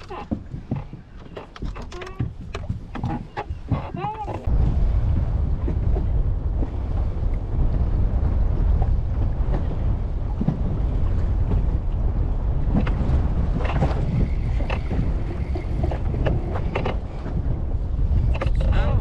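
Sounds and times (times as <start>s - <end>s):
small clicks and knocks: 0.0s - 4.5s
wind buffeting microphone: 0.0s - 19.0s.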